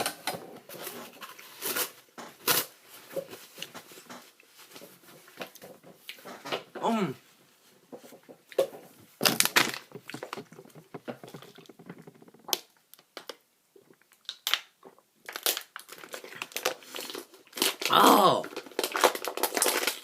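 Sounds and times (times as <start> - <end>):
crunching crisp seaweed snack: 14.1 - 20.0.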